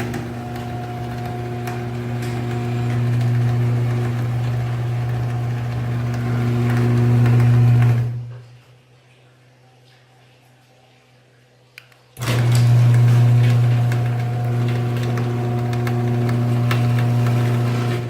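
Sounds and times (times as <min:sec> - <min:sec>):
garage door opener motor humming: 0:00.0 - 0:08.4, 0:12.2 - 0:18.0.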